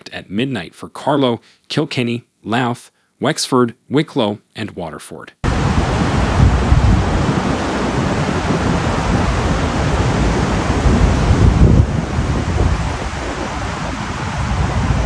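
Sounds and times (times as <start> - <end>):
wind buffeting microphone: 5.4 - 15.0.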